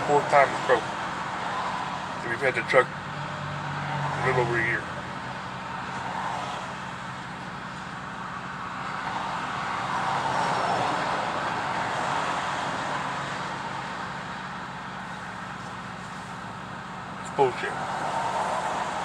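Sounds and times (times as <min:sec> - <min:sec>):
low traffic hum: 0:00.0 - 0:19.0
vehicle passing: 0:03.0 - 0:05.1.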